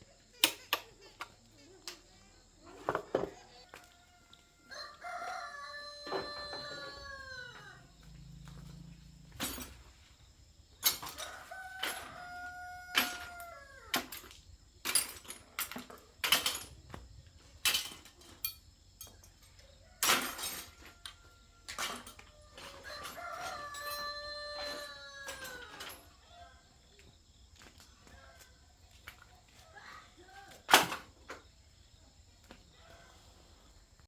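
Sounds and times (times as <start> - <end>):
rooster crowing: 3.5 - 8.8, 11.0 - 13.9, 19.6 - 26.7.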